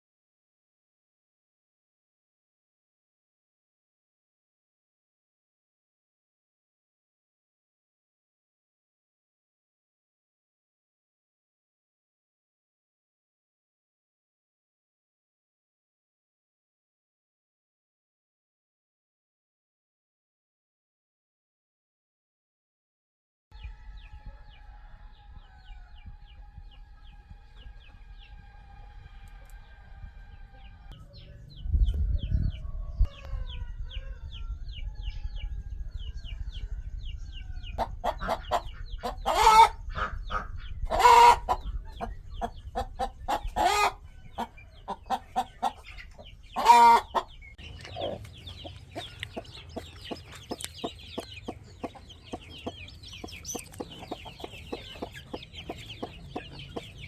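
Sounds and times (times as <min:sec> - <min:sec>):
chicks peeping: 0:23.6 - 0:57.0
low rumble: 0:25.2 - 0:37.8
chickens clucking: 0:30.8 - 0:57.0
loud chicken calls: 0:37.3 - 0:57.0.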